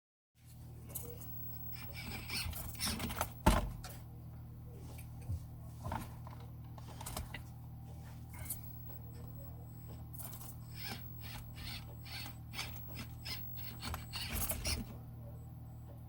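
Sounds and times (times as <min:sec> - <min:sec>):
low hum: 0:00.4 - 0:16.0
rc crawler clattering: 0:00.9 - 0:03.4, 0:10.1 - 0:15.0.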